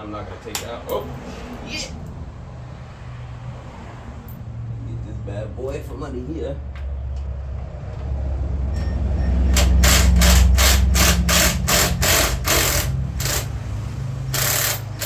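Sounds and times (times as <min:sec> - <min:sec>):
hand ratchet clicking: 0:09.5 - 0:13.6, 0:14.3 - 0:15.0.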